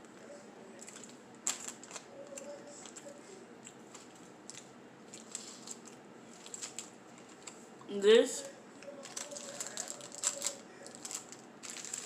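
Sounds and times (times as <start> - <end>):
person chewing a snack: 0.8 - 7.6.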